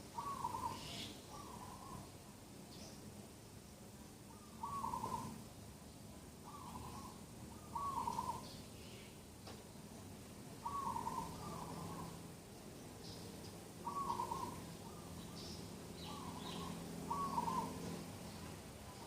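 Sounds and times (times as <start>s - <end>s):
bird calling: 0.0s - 2.1s, 4.3s - 5.4s, 6.4s - 9.2s, 10.6s - 12.2s, 13.8s - 18.0s
faint bird chirps: 0.0s - 3.1s, 4.3s - 5.4s, 6.4s - 9.2s, 10.6s - 12.2s, 12.8s - 19.0s.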